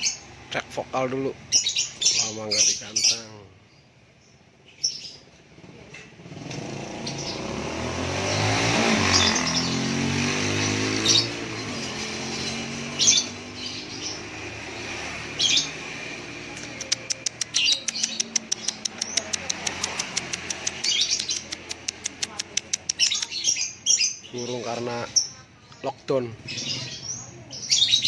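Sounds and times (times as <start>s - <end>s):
motor vehicle passing: 0.0s - 3.1s, 4.0s - 28.0s
songbirds chirping: 0.0s - 28.0s.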